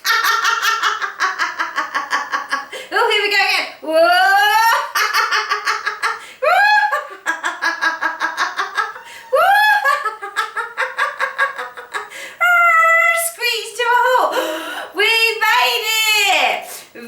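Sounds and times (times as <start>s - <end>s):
woman laughing heartily: 0.0s - 2.9s, 4.3s - 12.4s
woman whooping: 9.0s - 10.0s, 12.4s - 13.3s.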